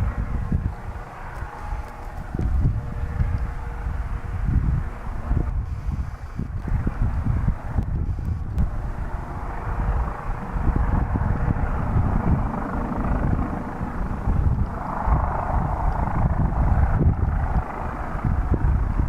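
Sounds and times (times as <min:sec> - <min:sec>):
faint steady whine: 0:00.0 - 0:19.0
helicopter rotor and engine: 0:00.0 - 0:19.0.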